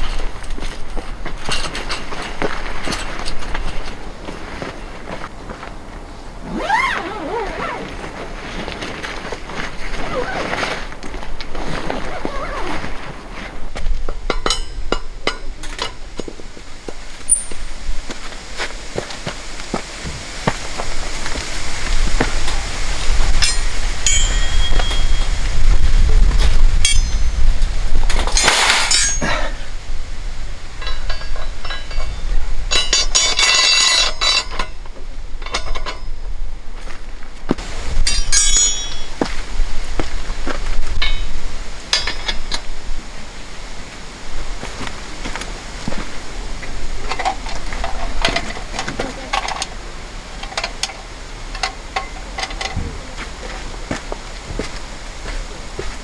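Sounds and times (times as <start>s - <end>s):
loud rustling: 0.0s - 35.8s.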